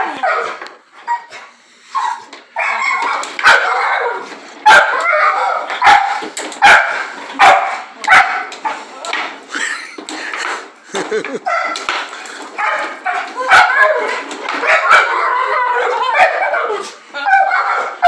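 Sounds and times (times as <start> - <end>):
dog barking and yipping: 0.0 - 1.4, 2.0 - 8.8, 11.4 - 11.9, 12.5 - 18.0.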